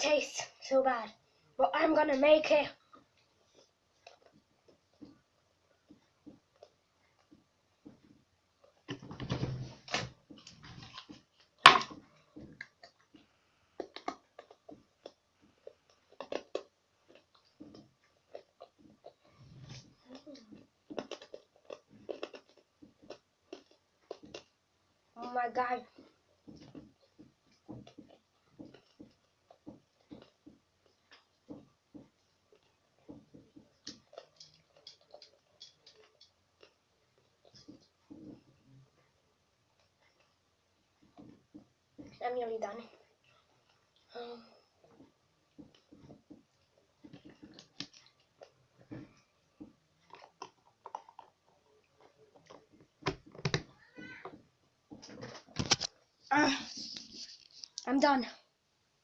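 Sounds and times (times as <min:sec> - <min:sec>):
mouth sucking and chewing candy: 0:12.2 - 0:24.7, 0:25.8 - 0:42.2, 0:42.9 - 0:53.4
wet mouth clicks and lip smacks: 0:13.8 - 0:19.9, 0:50.0 - 0:53.4.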